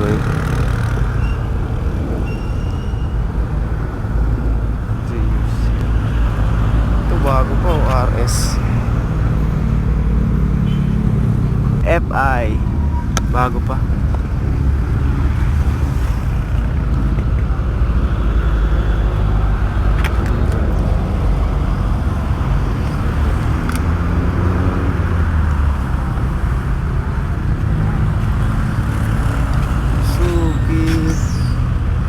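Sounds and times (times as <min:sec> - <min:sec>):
vehicle engine and traffic noise: 0:00.0 - 0:32.0.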